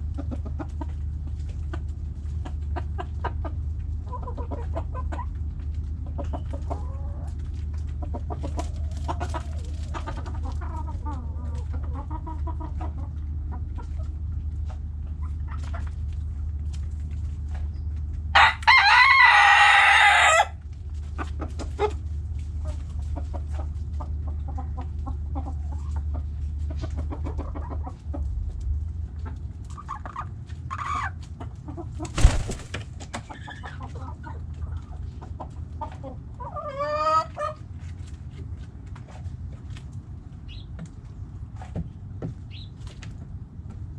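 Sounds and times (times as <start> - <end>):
hens clucking: 0.1 - 16.3, 21.0 - 28.3, 29.1 - 38.0
rooster crowing: 18.4 - 20.6.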